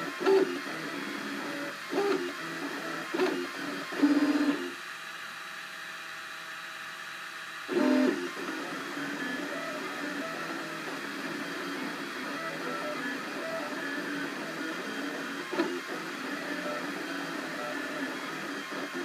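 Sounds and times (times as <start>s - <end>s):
multi-tone motor whine: 0.0s - 19.0s
stepper motors whirring: 7.7s - 19.0s.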